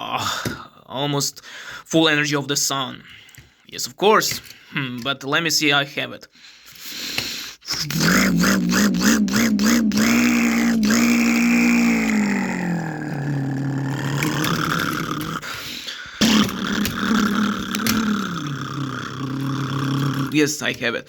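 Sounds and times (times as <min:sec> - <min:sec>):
person droning with voice: 0:07.7 - 0:15.5, 0:16.2 - 0:20.5.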